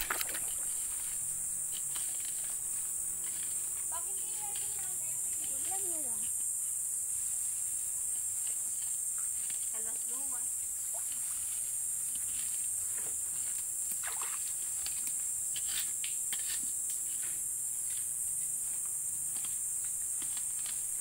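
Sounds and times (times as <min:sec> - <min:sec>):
splashes of wading in shallow water: 0:00.0 - 0:01.1, 0:13.9 - 0:14.7
high-pitched insect drone: 0:00.0 - 0:21.0.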